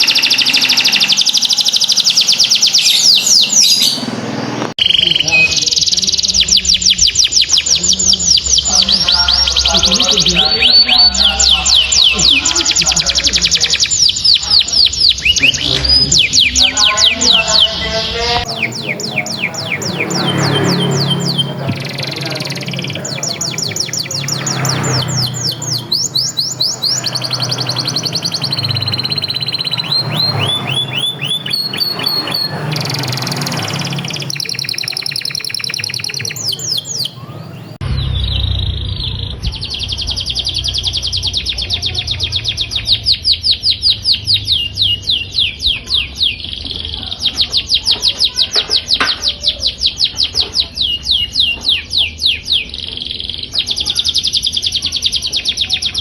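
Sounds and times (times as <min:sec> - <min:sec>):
canary singing trills: 0:00.0 - 0:56.0
low hum: 0:37.7 - 0:45.1.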